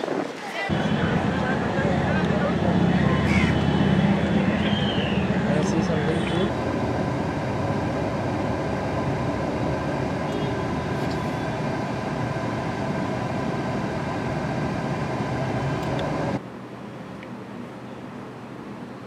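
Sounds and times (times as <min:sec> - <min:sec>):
faint voices: 0:00.2 - 0:06.6
moving vehicle rumble: 0:00.6 - 0:19.0.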